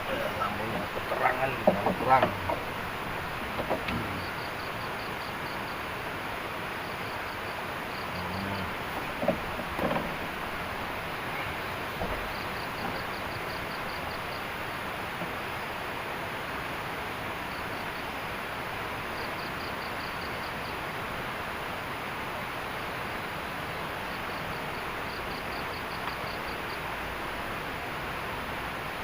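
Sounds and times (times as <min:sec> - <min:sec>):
heavy rain hiss: 0:00.0 - 0:29.0.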